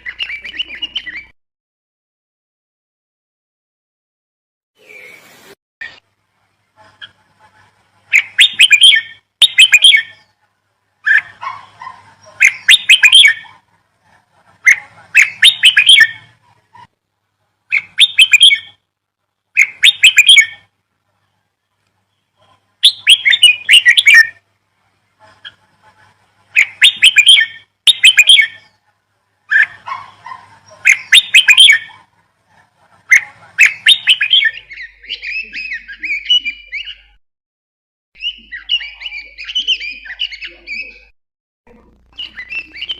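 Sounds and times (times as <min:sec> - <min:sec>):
songbird chirping: 0:00.0 - 0:01.4, 0:04.8 - 0:16.9, 0:17.7 - 0:18.9, 0:19.5 - 0:37.2, 0:38.2 - 0:41.1, 0:42.1 - 0:42.9.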